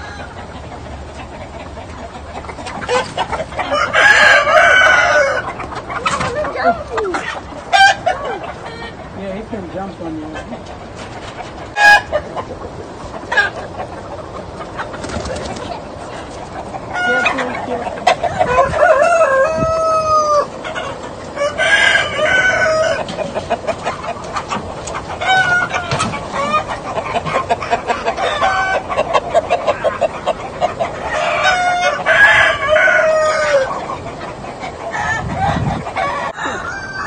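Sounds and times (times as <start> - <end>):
roosters crowing: 0.0 - 9.2, 11.2 - 15.8, 16.8 - 37.0
hens clucking: 0.0 - 37.0.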